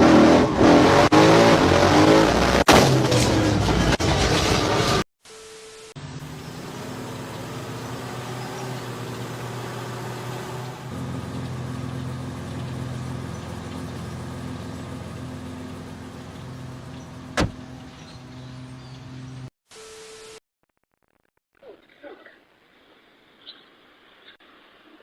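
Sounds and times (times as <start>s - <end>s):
vehicle engine running: 6.0s - 19.5s.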